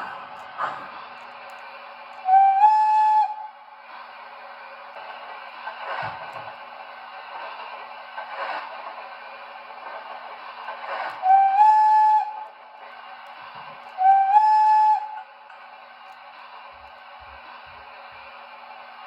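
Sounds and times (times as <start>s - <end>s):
slow steam chuffs: 0.0s - 19.0s
model train steam whistle: 2.2s - 3.6s, 11.1s - 12.6s, 13.8s - 15.3s.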